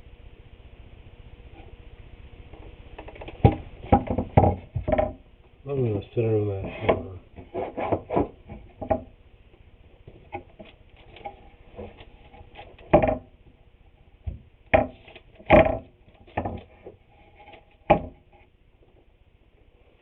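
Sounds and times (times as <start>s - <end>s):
wooden boards knocking: 3.0s - 5.2s, 6.7s - 9.1s, 12.8s - 13.3s, 14.3s - 16.9s, 17.8s - 18.3s.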